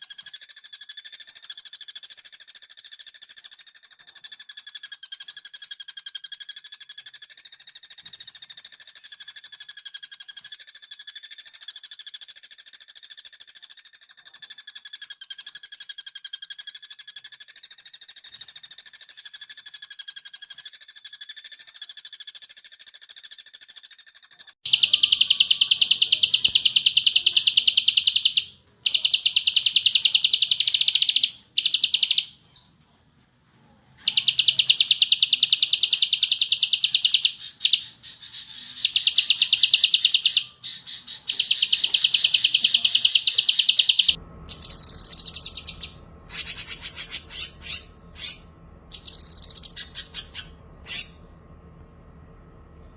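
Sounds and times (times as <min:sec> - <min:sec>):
songbird whistled notes and buzzing trill: 0:00.0 - 0:32.7, 0:34.0 - 0:51.3
low background hum: 0:24.7 - 0:52.9.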